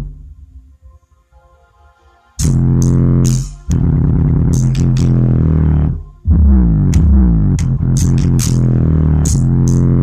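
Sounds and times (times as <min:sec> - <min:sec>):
deep bass note: 0:02.4 - 0:10.0
faint low rumble: 0:02.4 - 0:10.0.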